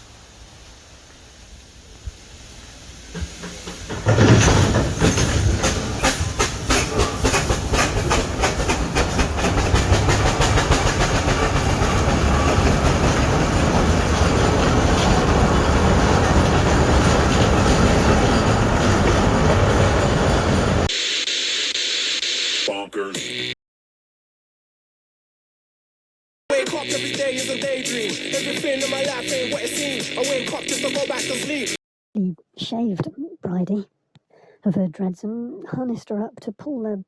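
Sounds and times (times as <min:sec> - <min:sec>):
train wheels clicking over joints: 0:03.0 - 0:20.9.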